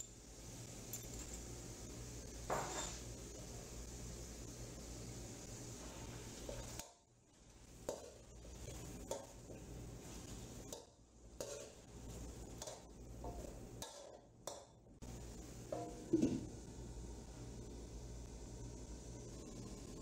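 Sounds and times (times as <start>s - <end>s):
metal spoon scraping metal pan: 10.6s - 14.2s
low hum: 15.0s - 20.0s.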